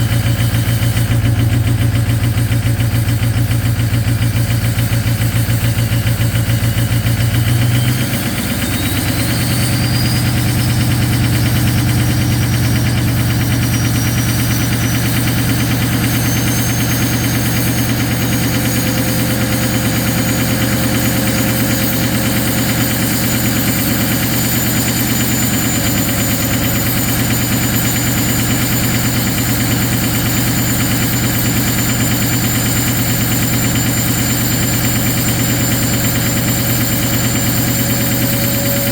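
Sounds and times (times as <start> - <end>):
diesel engine idling with clatter: 0.0 - 38.9
high whine rising in pitch: 8.1 - 38.9.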